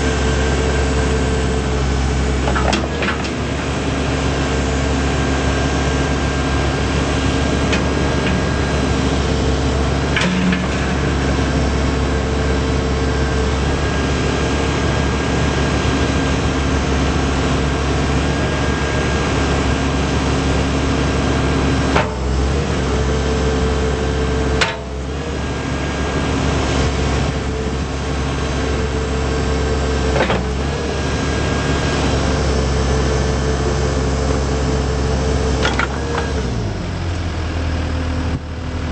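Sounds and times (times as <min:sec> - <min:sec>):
diesel engine running: 0:00.0 - 0:38.9
machine knocks and clunks: 0:02.4 - 0:03.4.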